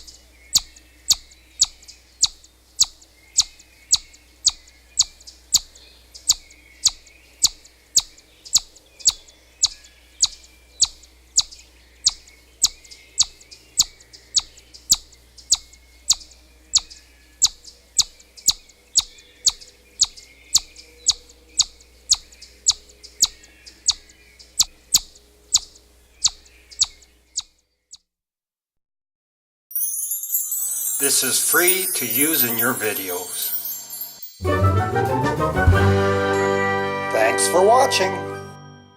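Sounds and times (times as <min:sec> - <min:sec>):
chipmunk chipping: 0:00.0 - 0:28.0.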